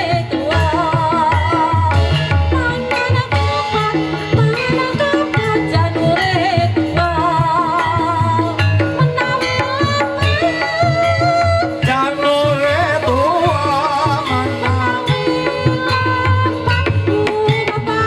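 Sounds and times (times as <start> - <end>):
hand drums driving rhythm: 0.0 - 18.0
melodic gamelan instruments: 6.7 - 18.0.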